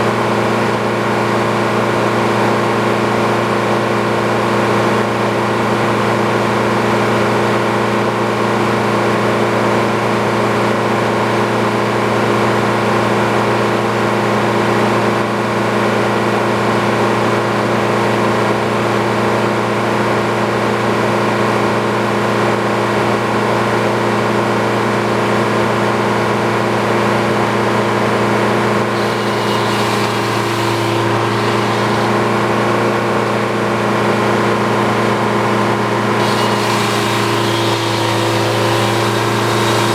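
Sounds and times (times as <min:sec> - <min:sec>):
sawmill engine running: 0:27.5 - 0:39.9.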